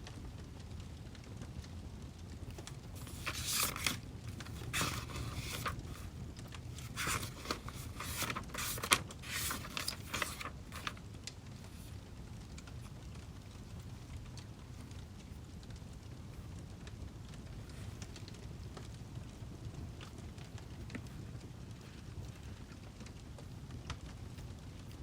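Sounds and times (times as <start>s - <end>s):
paper rustling and scraping: 2.6s - 11.0s.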